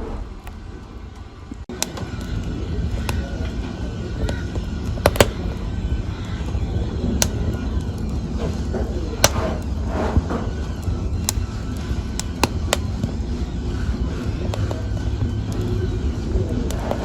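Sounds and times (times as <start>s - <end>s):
fire rumbling in fireplace: 0.0s - 17.0s
wood fire crackles and pops: 0.0s - 17.0s.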